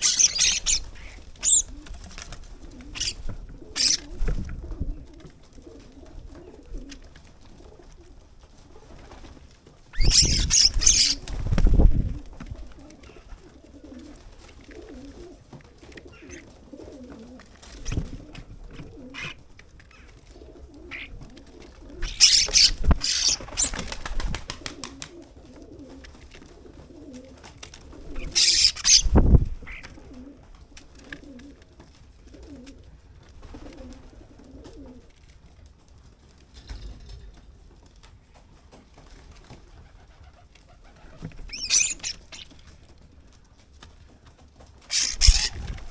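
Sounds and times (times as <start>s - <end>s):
birds cooing: 0.0s - 8.2s, 10.0s - 11.4s, 12.0s - 30.5s, 40.7s - 42.7s, 44.9s - 45.9s
wings flapping and scuffling: 0.0s - 45.9s.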